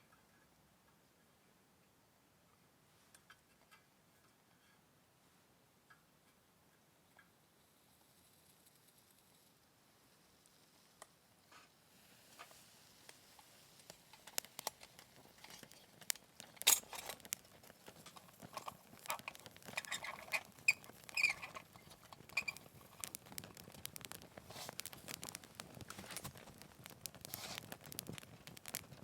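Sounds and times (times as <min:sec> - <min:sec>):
wood fire crackling and popping: 0:10.4 - 0:29.0.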